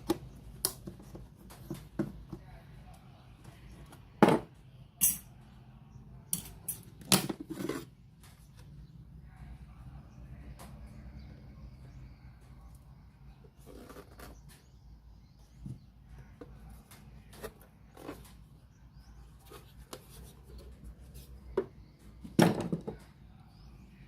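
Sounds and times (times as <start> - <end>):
faint low hum: 0.3 - 24.0.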